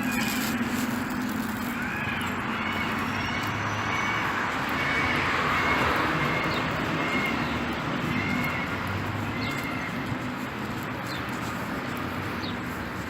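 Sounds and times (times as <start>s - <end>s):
rising-and-falling calls: 0.0s - 10.0s.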